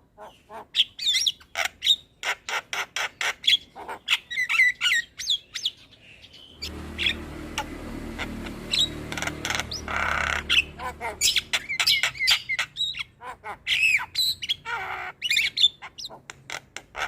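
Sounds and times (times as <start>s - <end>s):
low hum: 6.5s - 12.1s.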